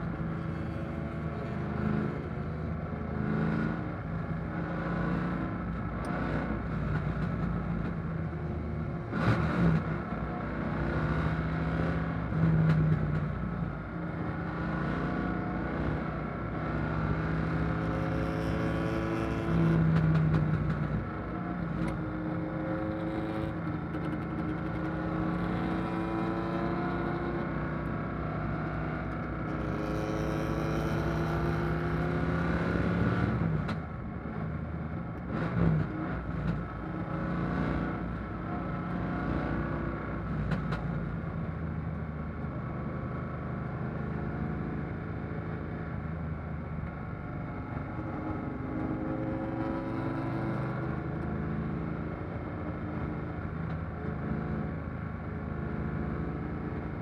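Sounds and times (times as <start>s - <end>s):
car engine under racing load: 0.0s - 57.0s.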